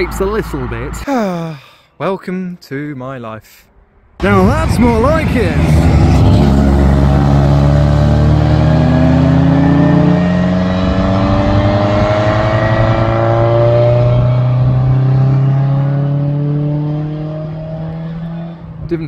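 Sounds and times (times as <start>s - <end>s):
car engine accelerating hard: 4.2s - 18.9s.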